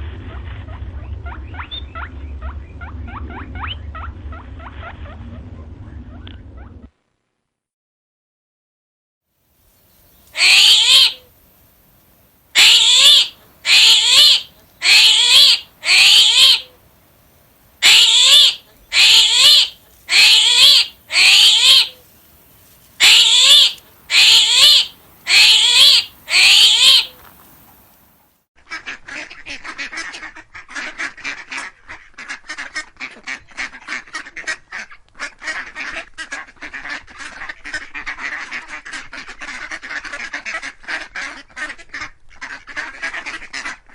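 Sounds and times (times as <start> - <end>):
waterfowl calling: 10.3 - 11.3, 12.6 - 16.8, 17.8 - 22.0, 23.0 - 27.9.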